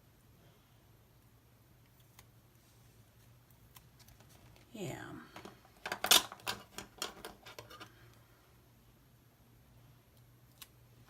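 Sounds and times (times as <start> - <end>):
paper crinkling and rustling: 3.1 - 4.7.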